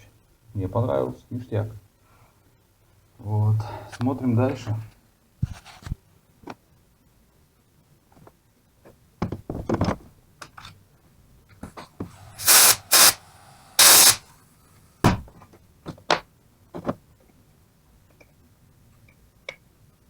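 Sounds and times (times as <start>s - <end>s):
short loud hissing bursts: 12.1s - 14.4s.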